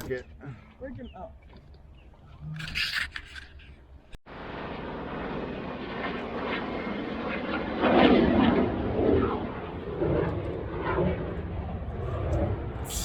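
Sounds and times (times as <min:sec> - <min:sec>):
fighter jet roar: 0:04.3 - 0:13.0.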